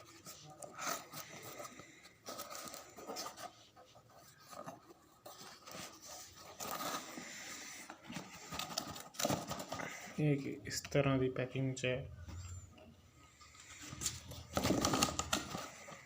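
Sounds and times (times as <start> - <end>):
packaging rustling and scraping: 0.0 - 10.2, 13.3 - 16.0.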